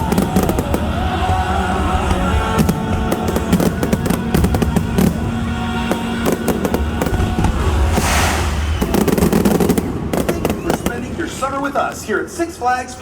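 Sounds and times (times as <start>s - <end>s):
show music: 0.0s - 11.2s
fireworks exploding and crackling: 0.0s - 12.3s
firework hissing rush: 6.0s - 11.2s.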